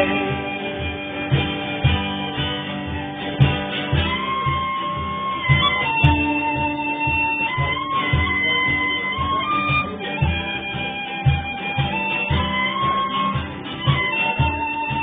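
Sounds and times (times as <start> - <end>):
acoustic guitar strumming: 0.0 - 15.0
melody instrument long held notes: 0.0 - 15.0.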